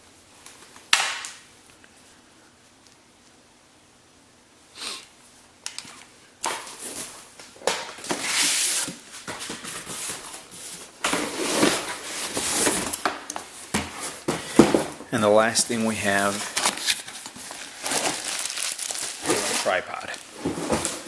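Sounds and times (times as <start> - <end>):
packaging rustling and crinkling: 15.9 - 21.0.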